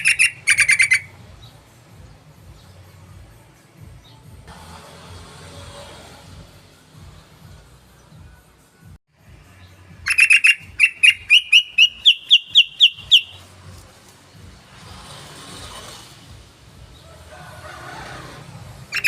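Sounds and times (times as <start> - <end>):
bird sharp chirping notes: 0.0 - 1.6, 9.6 - 13.6.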